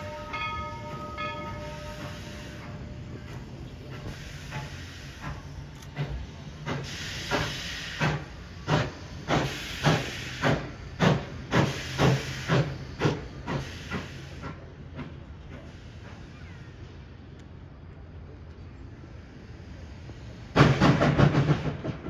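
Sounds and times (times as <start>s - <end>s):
steam hiss: 0.0s - 17.2s
steam locomotive chuffing: 0.0s - 17.2s, 19.3s - 22.0s.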